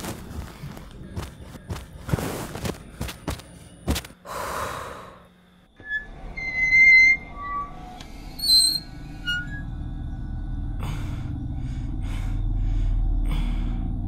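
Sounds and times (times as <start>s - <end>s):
high tones of film score: 0.0s - 14.0s.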